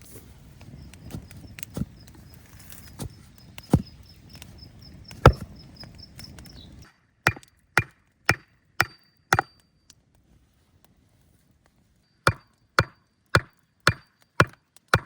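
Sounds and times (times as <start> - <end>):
wood being chopped: 2.6 - 4.0, 5.1 - 5.6, 7.3 - 9.6, 12.3 - 15.0.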